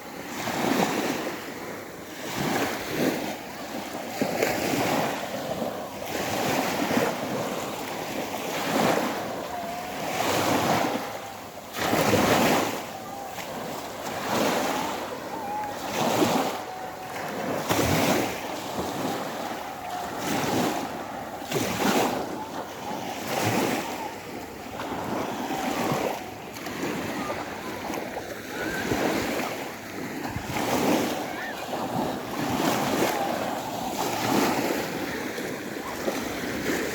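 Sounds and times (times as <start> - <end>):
sea waves breaking: 0.0 - 36.9
wind buffeting microphone: 4.6 - 36.9.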